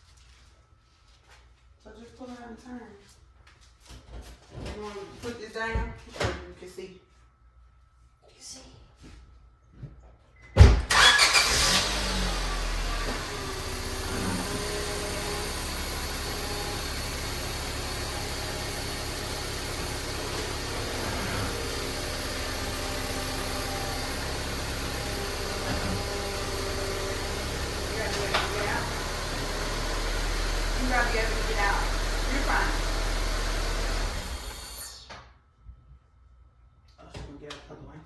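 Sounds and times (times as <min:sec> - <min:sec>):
car engine starting and idling: 0:10.9 - 0:34.8.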